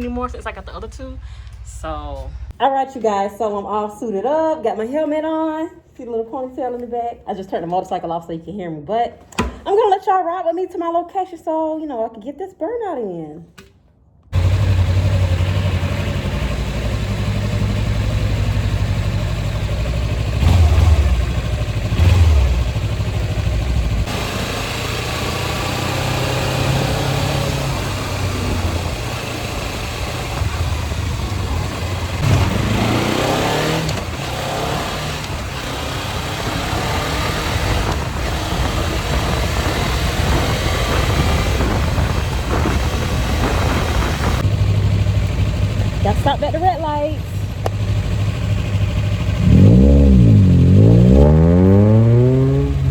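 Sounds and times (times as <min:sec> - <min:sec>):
motorcycle engine accelerating: 0:14.3 - 0:52.9.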